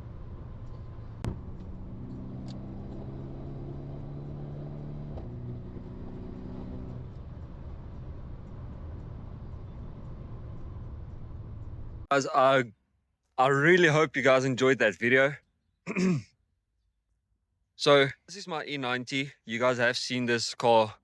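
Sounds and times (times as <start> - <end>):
car engine and road rumble: 0.0 - 12.1.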